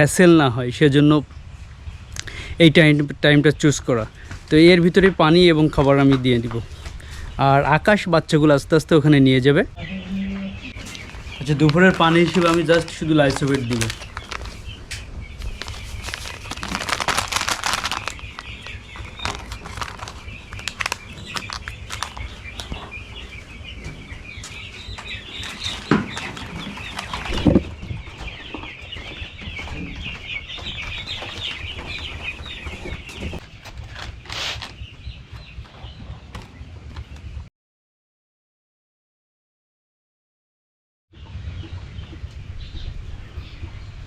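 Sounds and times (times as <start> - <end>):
chicks peeping: 1.1 - 37.4, 41.2 - 44.0
rustling and wing flapping: 10.4 - 23.4, 24.4 - 37.3.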